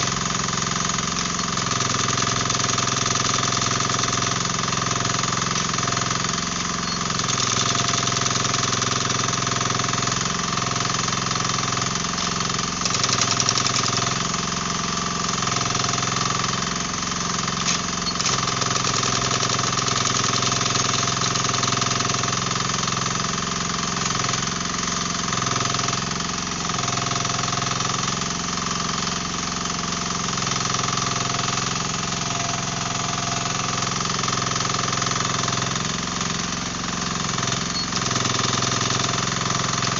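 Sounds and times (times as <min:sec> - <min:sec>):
hydraulic breaker hammering: 0:00.0 - 0:23.2, 0:30.6 - 0:39.9
excavator diesel engine running: 0:00.0 - 0:39.9.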